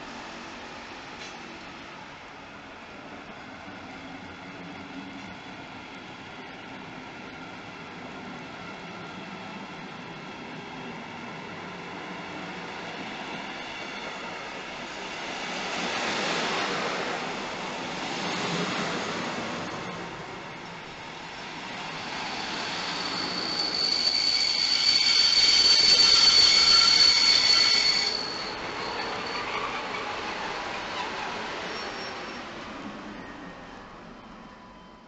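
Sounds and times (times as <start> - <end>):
train passing platform: 0.0 - 35.0
high squeal from running gear: 22.2 - 33.6.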